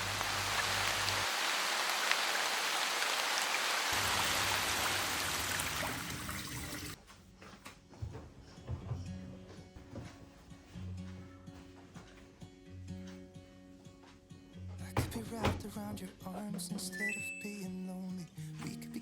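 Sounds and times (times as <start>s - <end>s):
water hiss: 0.0s - 7.0s
soft background music: 7.0s - 19.0s.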